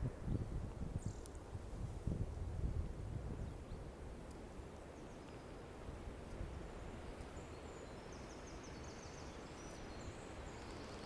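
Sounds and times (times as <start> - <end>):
wind blowing: 0.0 - 11.0
faint high-pitched chirping: 7.3 - 11.0.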